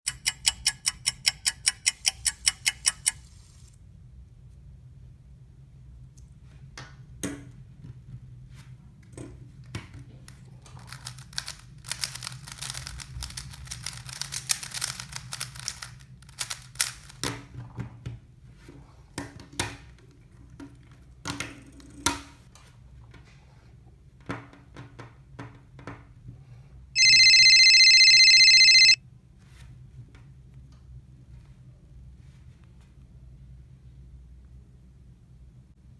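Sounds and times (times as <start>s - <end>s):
handling taps and clicks: 0.1s - 3.2s
electronic beep: 27.0s - 29.0s.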